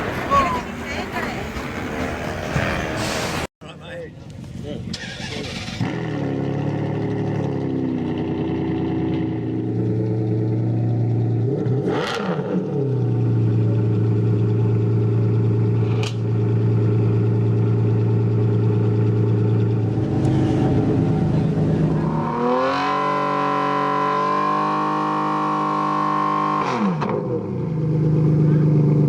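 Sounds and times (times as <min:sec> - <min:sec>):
car engine idling: 0:13.0 - 0:23.5.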